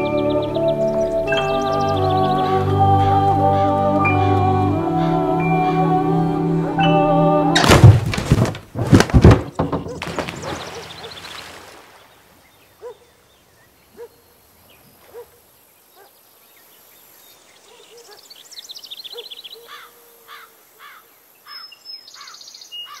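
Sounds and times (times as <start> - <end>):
quick repeated bird chirps: 9.8 - 11.8.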